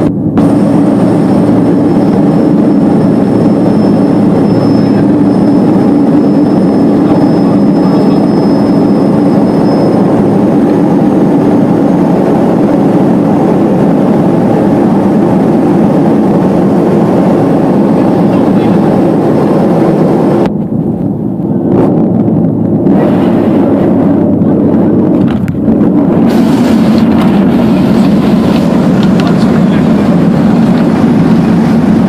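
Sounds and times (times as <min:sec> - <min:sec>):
faint high whine: 0:00.0 - 0:25.1
airliner engine drone in cabin: 0:00.0 - 0:32.0.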